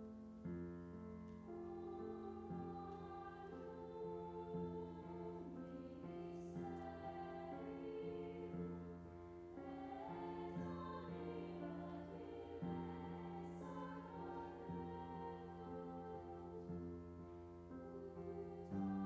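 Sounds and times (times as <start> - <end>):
slow church music with choir: 0.0 - 19.0.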